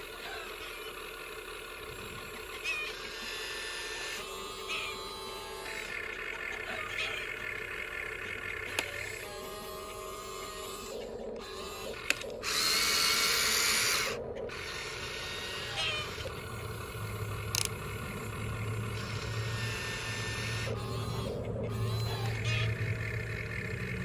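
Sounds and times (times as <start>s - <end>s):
toy excavator motors whirring: 0.0s - 24.0s
small clicks: 8.1s - 24.0s.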